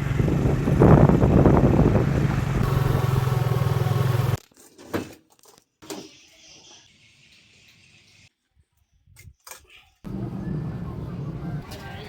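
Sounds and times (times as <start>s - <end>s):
engine running: 0.0s - 4.4s, 10.1s - 11.8s.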